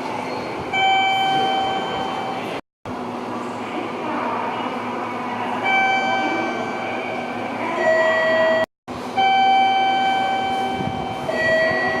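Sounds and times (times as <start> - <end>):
electronic signal tone: 0.7 - 2.5, 5.6 - 12.0.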